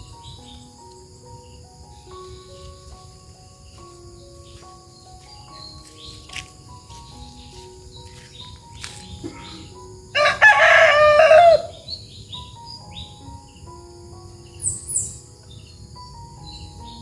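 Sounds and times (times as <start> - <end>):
faint background music: 0.0 - 17.0
rooster crowing: 10.2 - 11.9.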